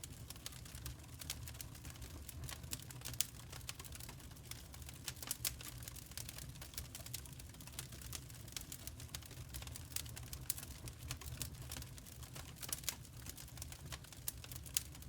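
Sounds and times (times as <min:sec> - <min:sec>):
low rumble of burning logs: 0:00.0 - 0:15.0
wood fire crackling: 0:00.0 - 0:15.0.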